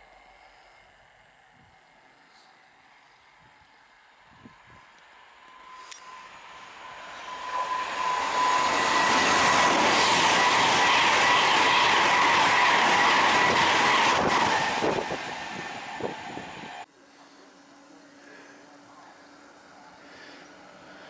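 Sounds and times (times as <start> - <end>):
train passing: 0.0 - 16.9, 18.7 - 21.0
high-pitched ringing tone: 4.3 - 9.2.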